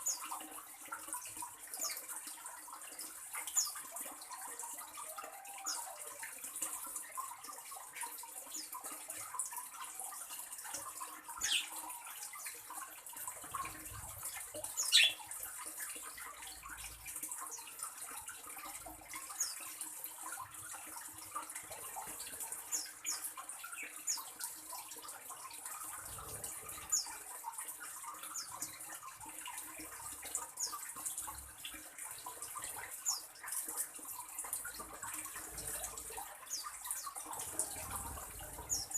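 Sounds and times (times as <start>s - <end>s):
small bird chirping: 11.4s - 11.8s, 14.7s - 15.3s.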